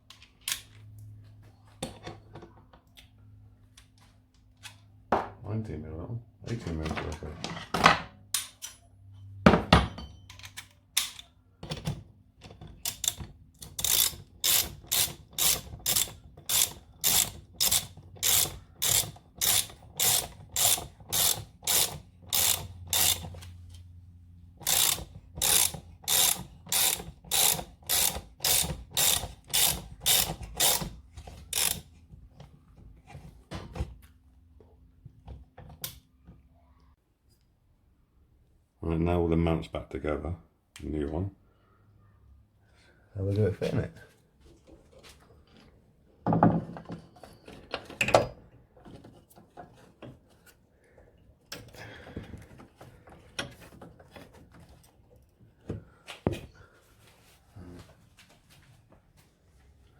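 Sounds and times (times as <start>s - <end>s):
socket ratchet clicking: 12.8s - 23.4s, 24.6s - 30.9s, 31.5s - 31.9s.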